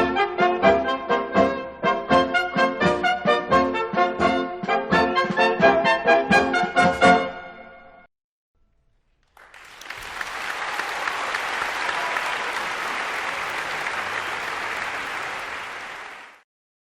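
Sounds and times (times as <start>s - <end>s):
audience applauding: 9.1s - 16.5s.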